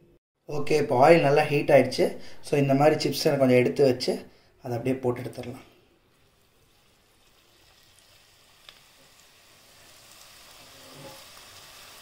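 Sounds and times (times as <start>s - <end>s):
slices sizzling in hot oil: 6.1s - 12.0s.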